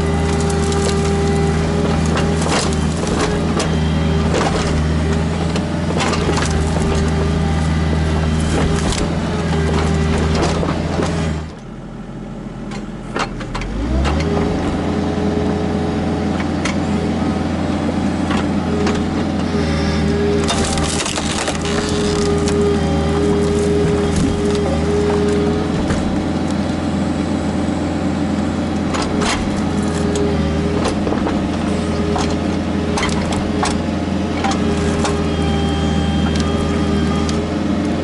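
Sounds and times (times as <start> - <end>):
wood and roots cracking: 0.0 - 11.5, 20.0 - 27.0, 28.8 - 33.8, 34.4 - 35.5
excavator diesel engine running: 0.0 - 38.0.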